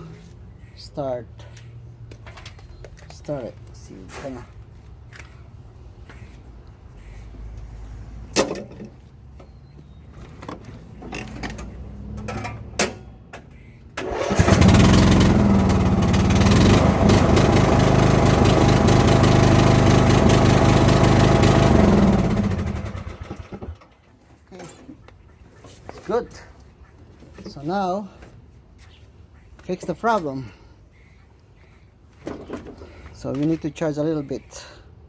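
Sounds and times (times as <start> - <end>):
riding mower engine running: 14.0 - 24.0.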